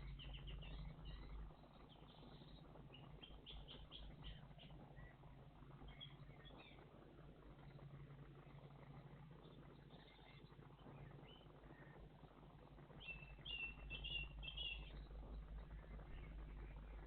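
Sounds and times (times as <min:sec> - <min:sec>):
songbird chirping: 0:00.0 - 0:06.8, 0:13.0 - 0:17.0
faint low rumble: 0:00.0 - 0:17.0.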